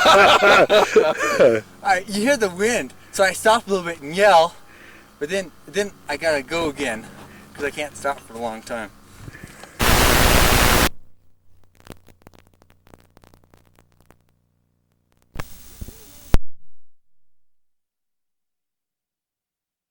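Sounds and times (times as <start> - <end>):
static hiss bursts: 9.0 - 16.4
faint crackling clicks: 11.5 - 16.4.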